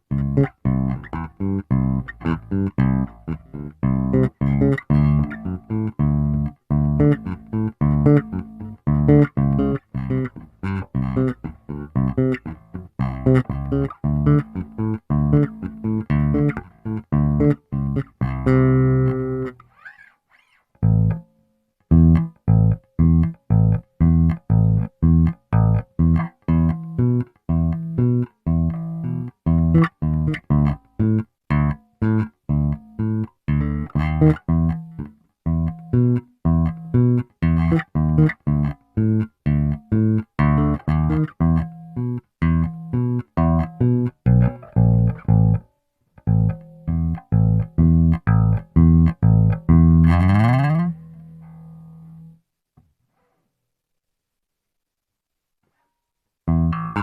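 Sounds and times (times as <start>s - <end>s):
electric bass plucked notes: 0.0s - 19.7s, 20.8s - 21.3s, 21.9s - 52.4s, 56.5s - 57.0s.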